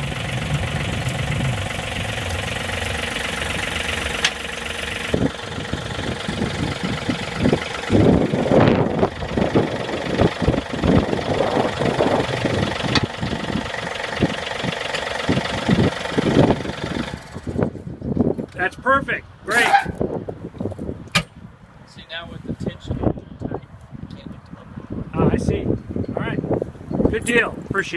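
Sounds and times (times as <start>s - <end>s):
tractor diesel engine running: 0.0s - 18.6s.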